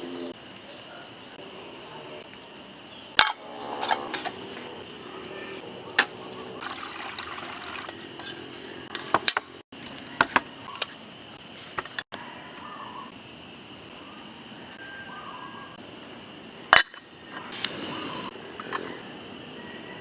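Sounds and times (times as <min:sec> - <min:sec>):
high-pitched background drone: 0:00.0 - 0:00.4
metal cookware clinking: 0:03.2 - 0:04.7, 0:06.0 - 0:09.4.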